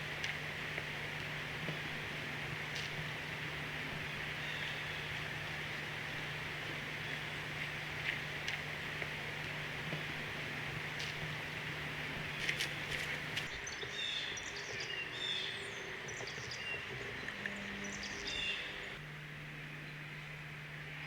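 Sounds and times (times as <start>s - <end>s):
outdoor hiss: 0.0s - 16.2s
low hum: 0.0s - 21.0s
small birds chirping: 12.2s - 19.0s.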